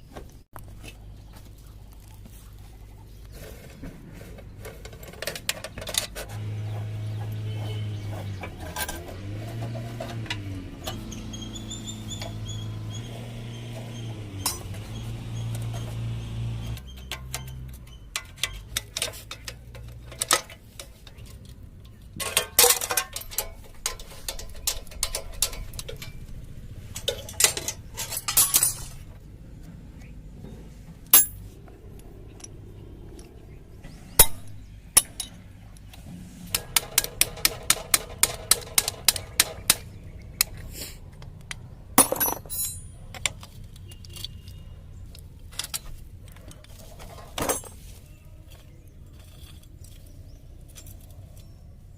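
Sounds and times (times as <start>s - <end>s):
metal tools clinking: 13.7s - 16.0s, 16.8s - 29.2s, 31.1s - 32.6s, 34.1s - 35.6s, 41.2s - 51.9s.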